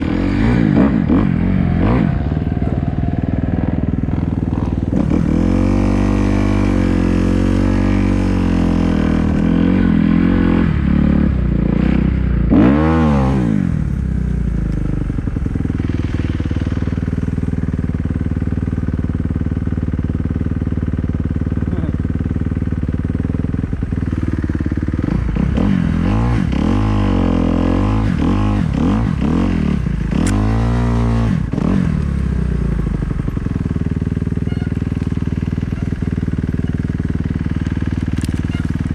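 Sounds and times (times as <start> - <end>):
dirt bike engine revving: 0.0 - 17.5, 23.7 - 38.9.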